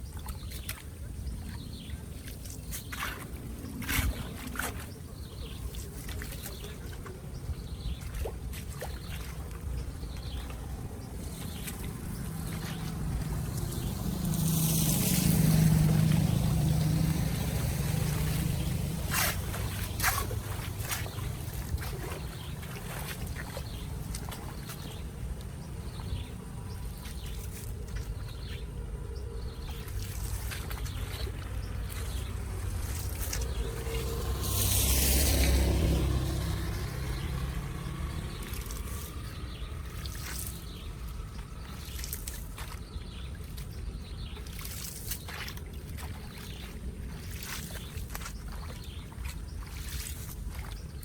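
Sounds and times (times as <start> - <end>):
water trickling and pouring: 0.0 - 28.6, 29.3 - 51.0
low rumble: 9.4 - 41.8.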